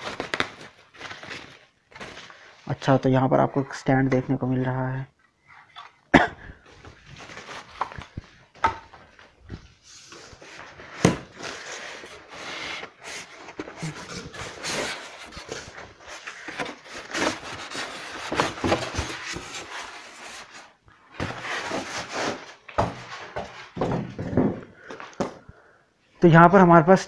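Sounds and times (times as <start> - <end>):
cardboard scraping and rustling: 9.0 - 24.4.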